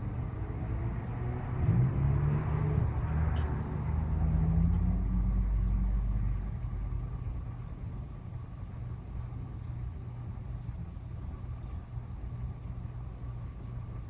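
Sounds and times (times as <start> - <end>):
vehicle engine rumbling: 0.0 - 9.3.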